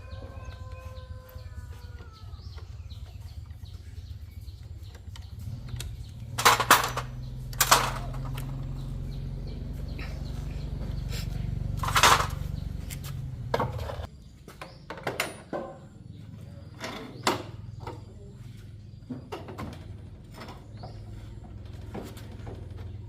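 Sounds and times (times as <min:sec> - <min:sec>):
low machine hum: 0:00.0 - 0:14.1
clinks and knocks: 0:04.9 - 0:09.0, 0:11.8 - 0:12.6.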